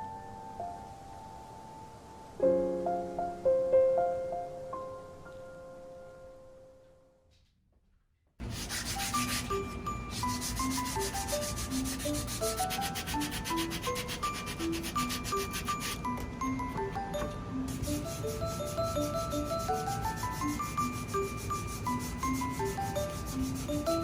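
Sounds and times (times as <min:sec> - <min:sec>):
wood being sanded: 0:08.4 - 0:16.0, 0:17.7 - 0:24.0
bell-like background music: 0:08.9 - 0:24.0.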